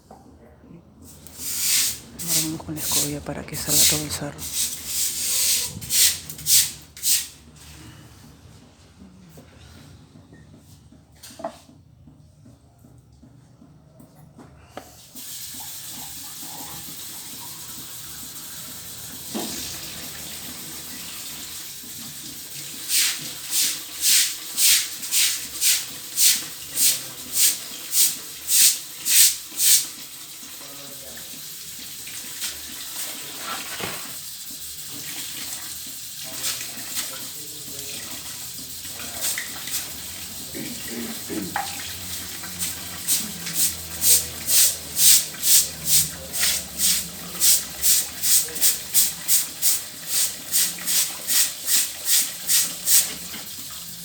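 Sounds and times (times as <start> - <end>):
brush scrubbing tiles: 1.3 - 7.3, 22.8 - 29.9, 42.6 - 53.3.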